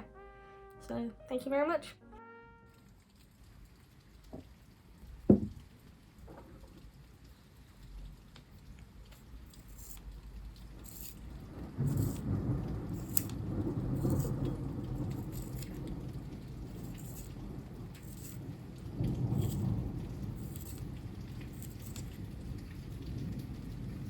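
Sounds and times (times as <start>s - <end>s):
rain falling: 2.1s - 24.0s
sharp drips: 2.7s - 24.0s
thunder rumbling: 10.2s - 24.0s.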